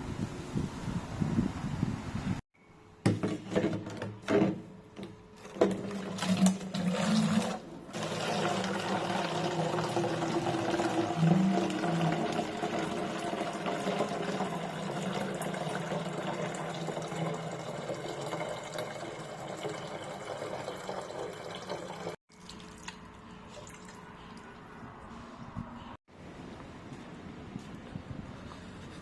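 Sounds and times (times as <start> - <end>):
water filling a container: 5.4 - 24.4.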